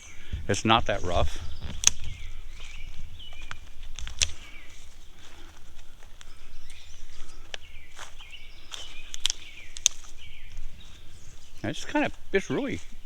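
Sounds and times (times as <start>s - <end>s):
wild birds calling: 0.0s - 13.0s
sharp clicks: 1.1s - 2.2s, 3.4s - 4.4s, 9.1s - 10.0s.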